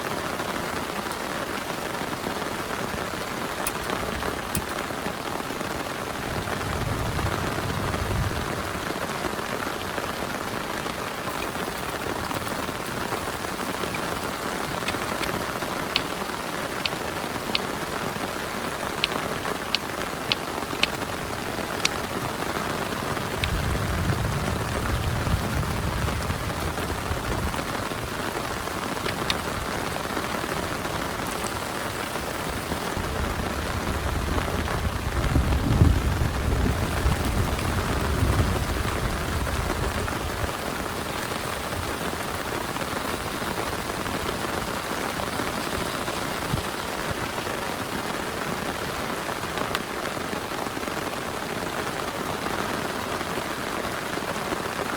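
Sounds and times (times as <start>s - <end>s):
heavy rain: 0.0s - 54.9s
sharp drips: 9.8s - 33.2s.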